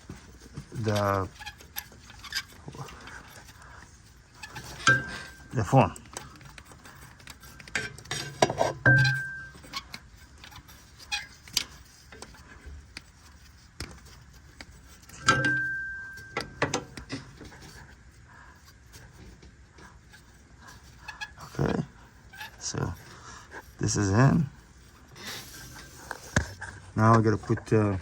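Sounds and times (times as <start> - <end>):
light metallic clicks and knocks: 13.8 - 17.6.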